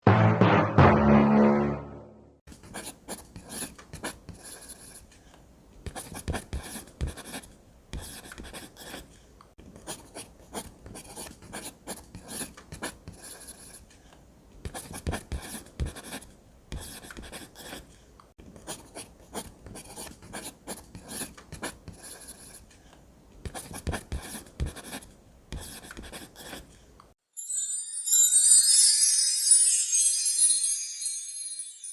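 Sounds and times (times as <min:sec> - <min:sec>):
pen scratching on paper: 0:02.5 - 0:05.0, 0:05.9 - 0:09.1, 0:09.8 - 0:13.8, 0:14.7 - 0:17.9, 0:18.6 - 0:22.6, 0:23.5 - 0:26.8.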